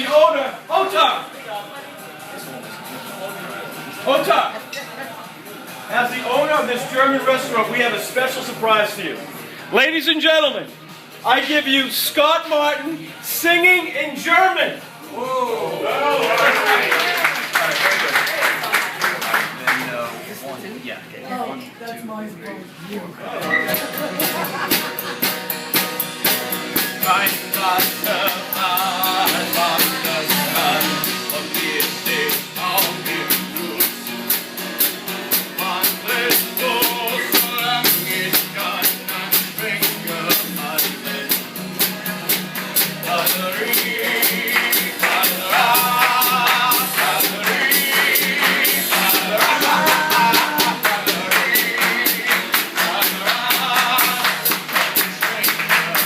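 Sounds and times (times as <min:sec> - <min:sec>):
rock drums and guitar: 0:23.6 - 0:56.0
person singing: 0:26.8 - 0:34.1, 0:35.4 - 0:41.6, 0:42.8 - 0:56.0.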